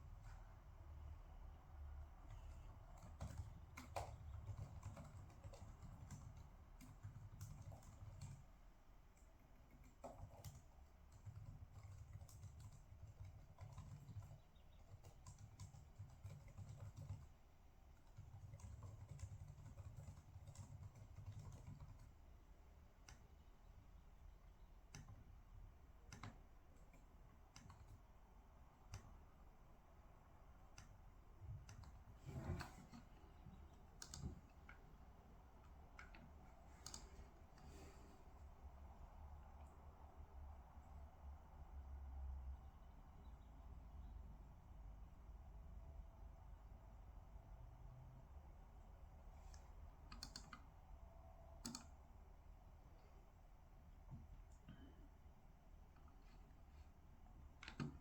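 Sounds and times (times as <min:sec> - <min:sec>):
typing on computer keyboard: 0:02.2 - 0:23.5, 0:24.8 - 0:28.2, 0:28.8 - 0:29.4, 0:30.6 - 0:35.0, 0:35.6 - 0:37.7, 0:49.5 - 0:50.8, 0:51.6 - 0:52.2, 0:57.4 - 0:58.0.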